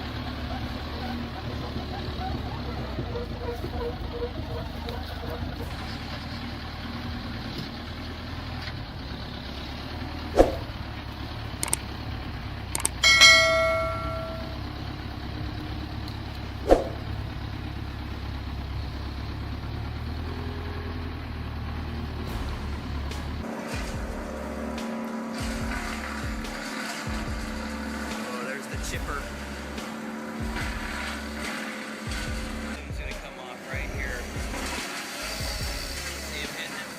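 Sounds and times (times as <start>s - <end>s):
low engine hum: 0.0s - 36.9s
metallic clang ringing: 12.8s - 14.8s.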